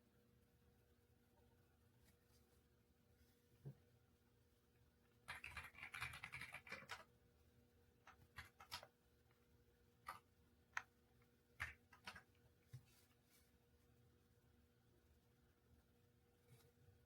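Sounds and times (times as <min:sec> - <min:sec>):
mechanical keyboard typing: 0:05.2 - 0:07.1, 0:08.1 - 0:08.9, 0:10.0 - 0:10.2, 0:11.6 - 0:12.4.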